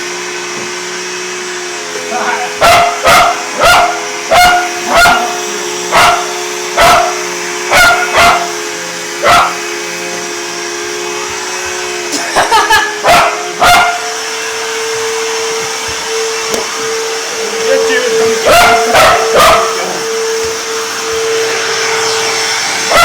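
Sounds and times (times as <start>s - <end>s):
vacuum cleaner motor humming: 0.0s - 23.0s
dog barking: 2.6s - 8.6s, 9.2s - 9.6s, 13.0s - 14.1s, 18.4s - 20.0s.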